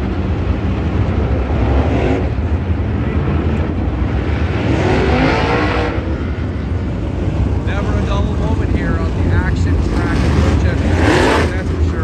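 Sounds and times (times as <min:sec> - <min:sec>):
race car engines running: 0:00.0 - 0:12.0
race car passing close: 0:00.1 - 0:12.0.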